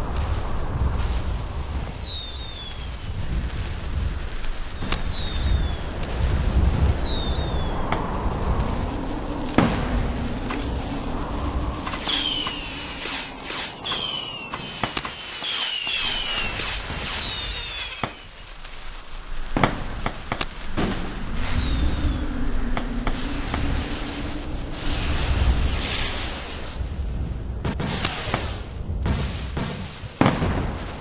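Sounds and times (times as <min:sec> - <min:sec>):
fireworks bangs and crackles: 0:00.0 - 0:31.0
fireworks whistles: 0:01.7 - 0:03.0, 0:04.8 - 0:06.0, 0:06.7 - 0:08.0, 0:09.6 - 0:18.9, 0:19.6 - 0:24.1, 0:24.8 - 0:26.8, 0:27.6 - 0:30.6.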